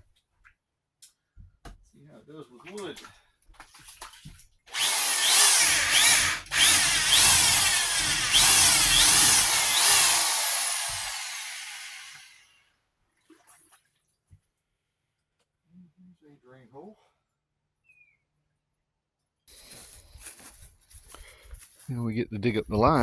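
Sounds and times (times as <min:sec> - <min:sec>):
power drill boring through wood: 0:04.7 - 0:12.6.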